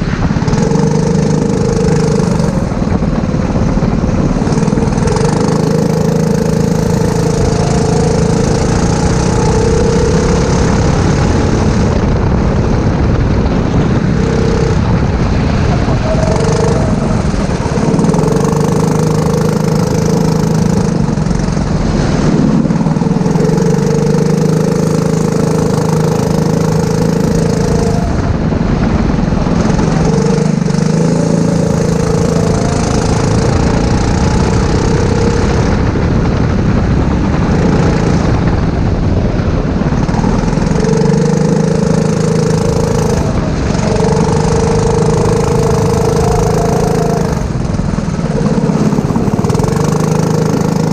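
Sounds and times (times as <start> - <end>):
go-kart engine running hard: 0.0 - 50.9.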